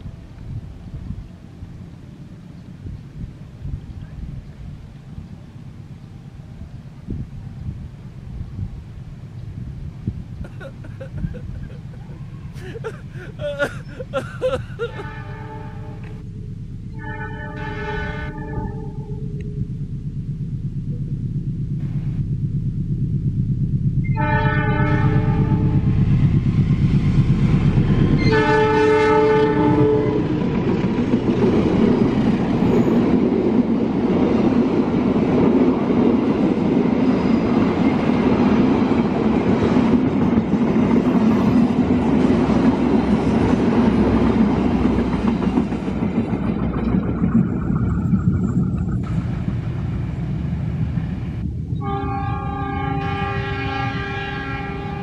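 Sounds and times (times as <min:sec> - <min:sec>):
train wheels rumbling on rails: 0:00.0 - 0:55.0
locomotive horn blasts: 0:14.8 - 0:16.3, 0:16.9 - 0:19.4, 0:24.0 - 0:25.9, 0:28.0 - 0:30.4, 0:51.8 - 0:55.0.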